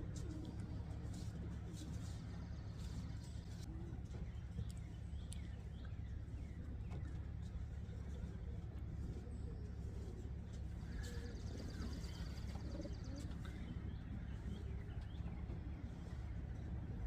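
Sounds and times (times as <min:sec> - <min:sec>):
pigeons cooing: 0:08.0 - 0:16.9.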